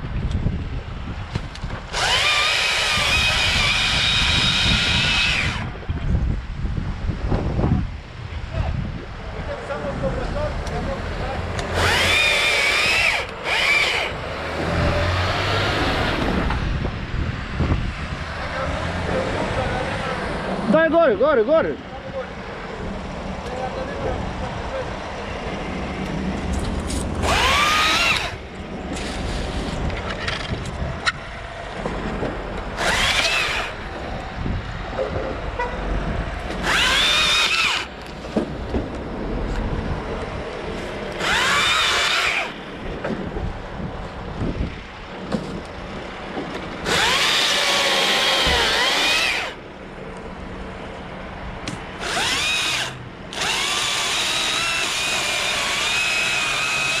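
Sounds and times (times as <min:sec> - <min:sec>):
steady background noise: 0:00.0 - 0:57.0
chainsaw revving: 0:01.9 - 0:05.7, 0:11.6 - 0:16.4, 0:27.2 - 0:28.4, 0:32.8 - 0:33.8, 0:36.5 - 0:37.9, 0:41.2 - 0:42.6, 0:46.8 - 0:49.6, 0:52.0 - 0:57.0.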